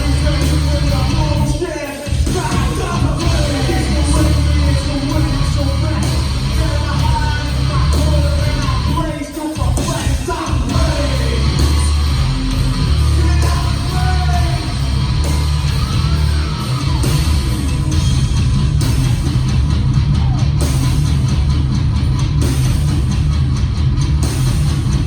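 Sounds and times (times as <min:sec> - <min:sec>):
person yelling and singing: 0:00.0 - 0:12.0, 0:12.9 - 0:17.6
live rock band playing: 0:00.0 - 0:25.0.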